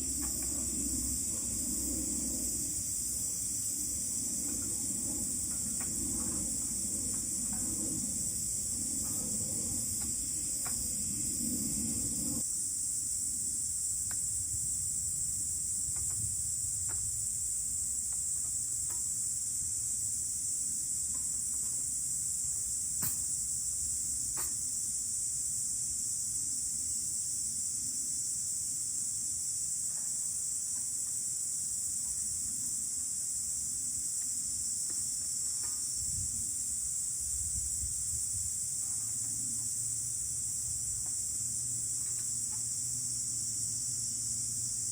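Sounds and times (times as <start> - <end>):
low rumble: 0.0 - 12.4
insects droning: 0.0 - 44.9.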